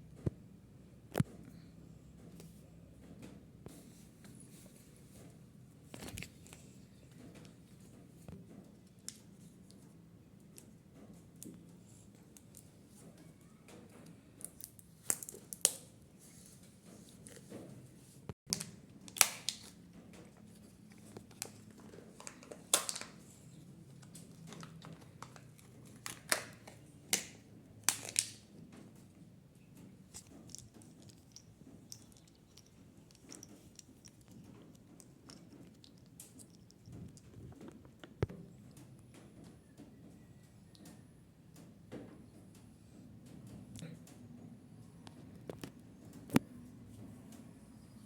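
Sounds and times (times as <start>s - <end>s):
plastic capsule snaps: 18.5s - 19.8s, 22.2s - 23.2s, 24.5s - 28.5s
plastic packaging crinkling: 18.5s - 28.6s.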